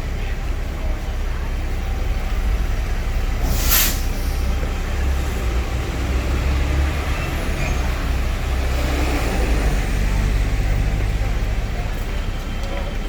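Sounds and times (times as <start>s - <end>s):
bus engine rumbling: 0.0s - 13.0s
air brakes hiss: 3.4s - 4.7s.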